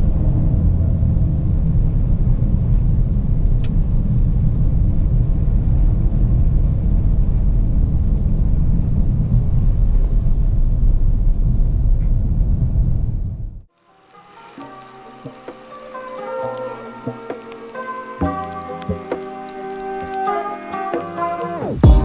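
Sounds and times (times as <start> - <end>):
diesel engine deep rumble: 0.0 - 9.5.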